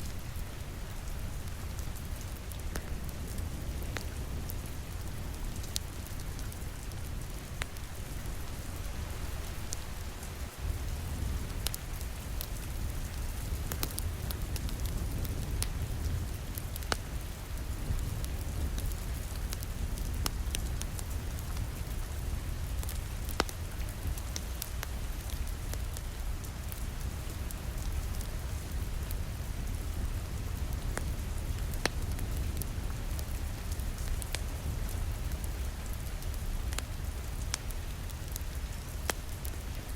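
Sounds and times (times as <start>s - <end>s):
rain pattering on a window: 0.0s - 39.9s
wood fire crackling: 0.0s - 39.9s.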